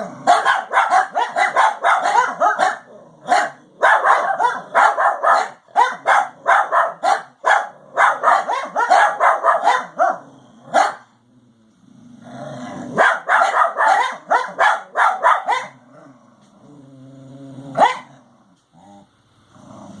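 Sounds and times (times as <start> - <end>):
dogs barking: 0.2 - 11.1, 13.0 - 15.8, 17.7 - 18.2.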